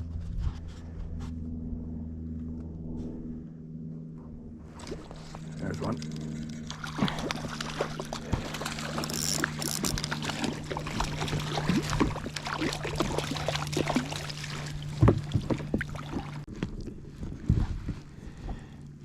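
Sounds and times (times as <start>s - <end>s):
steady low hum: 0.0s - 19.0s
water splashing around dinghy: 4.8s - 16.5s.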